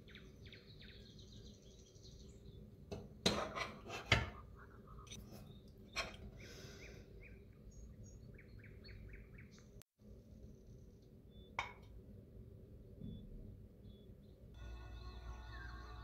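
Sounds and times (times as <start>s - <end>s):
small bird chirping: 0.0s - 2.7s, 4.8s - 9.8s, 10.5s - 11.6s, 13.0s - 14.6s.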